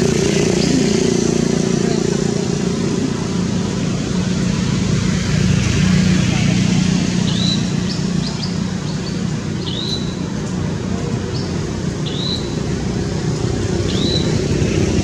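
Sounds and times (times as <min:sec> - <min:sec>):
high bird chirps: 0:07.2 - 0:10.3, 0:11.3 - 0:12.7, 0:13.8 - 0:14.5.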